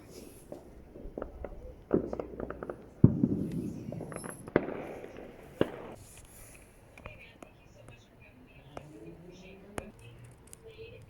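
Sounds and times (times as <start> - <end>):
distant fireworks bangs: 0.0 - 7.9
small fireworks pops: 0.0 - 8.1, 8.7 - 11.0
rolling echo and crackle: 0.0 - 11.0.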